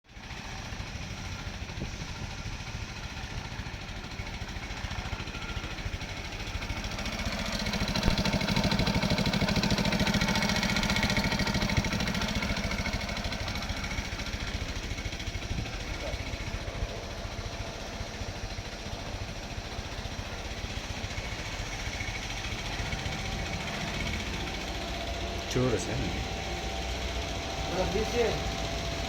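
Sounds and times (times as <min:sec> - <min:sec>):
motorcycle engine running: 0:00.1 - 0:29.0.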